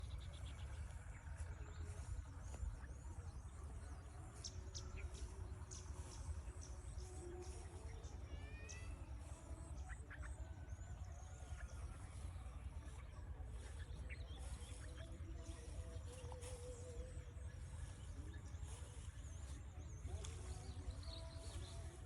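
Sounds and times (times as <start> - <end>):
small birds chirping: 0.0 - 22.0
steady low rumble: 9.1 - 22.0.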